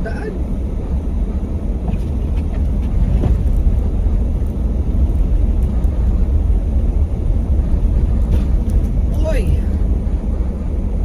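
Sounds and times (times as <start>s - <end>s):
car driving through deep snow: 0.0s - 11.0s.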